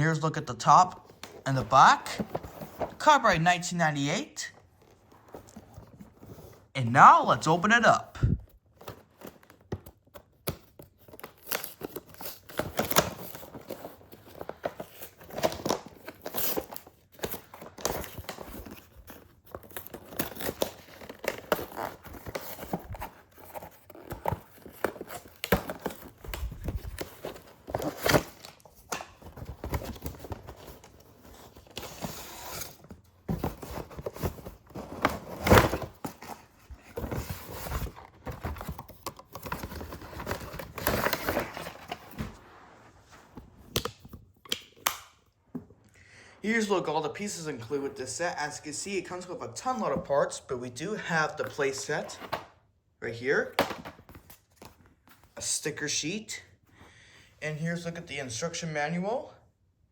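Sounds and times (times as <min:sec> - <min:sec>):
packaging rustling and crinkling: 0:08.6 - 0:44.3
cardboard tearing: 0:10.6 - 0:42.4.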